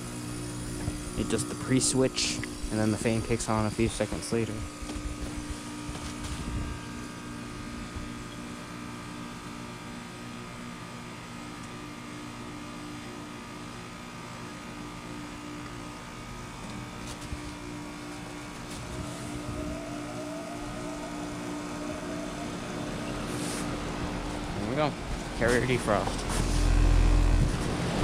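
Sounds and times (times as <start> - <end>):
heat pump compressor hum: 0.0 - 28.0
short rising whines: 17.5 - 28.0.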